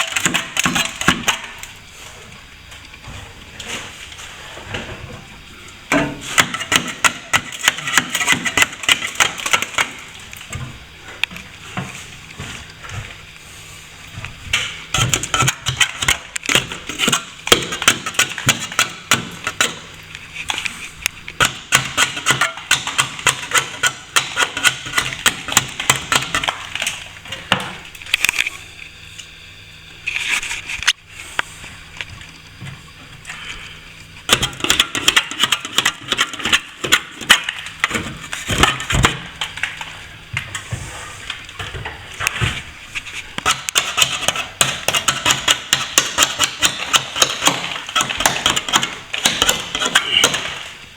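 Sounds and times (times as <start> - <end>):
trowel scraping plaster: 6.2 - 10.2, 14.9 - 26.7, 42.3 - 50.8.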